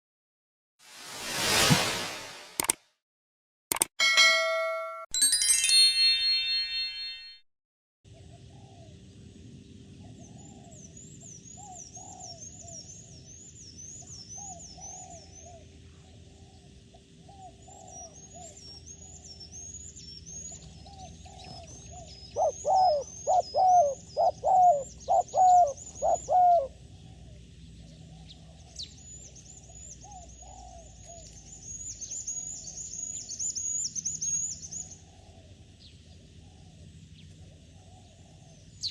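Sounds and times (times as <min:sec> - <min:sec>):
ringing chime: 0:04.0 - 0:07.4.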